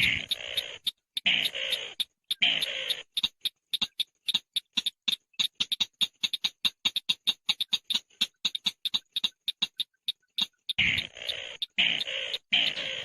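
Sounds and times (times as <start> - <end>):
harsh rasping bird call: 0.0 - 3.2, 10.7 - 13.0
dry clicking bird ticks: 0.0 - 13.0.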